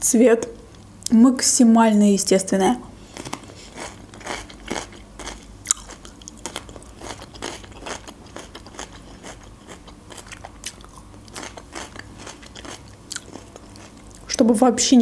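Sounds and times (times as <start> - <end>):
crisp chewing crunches: 3.1 - 14.3.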